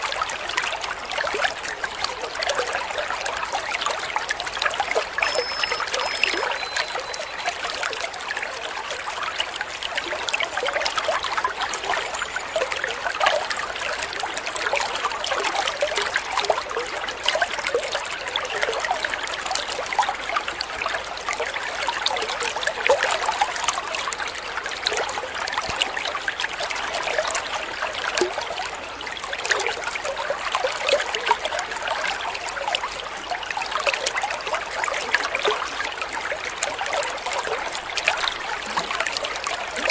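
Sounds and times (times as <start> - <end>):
water trickling and splashing: 0.0 - 39.9
faint short high notes: 5.2 - 8.0.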